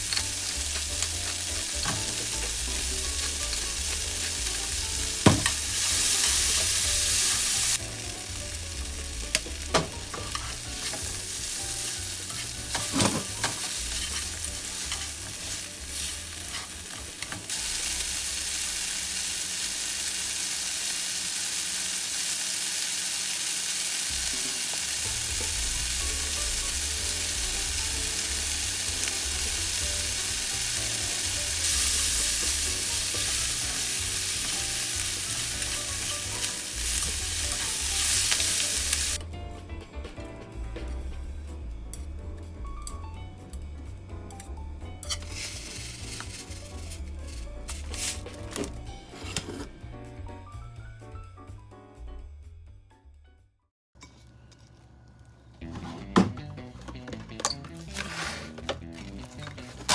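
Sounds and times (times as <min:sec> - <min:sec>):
food sizzling in frying pan: 0:00.0 - 0:39.2, 0:45.0 - 0:49.7.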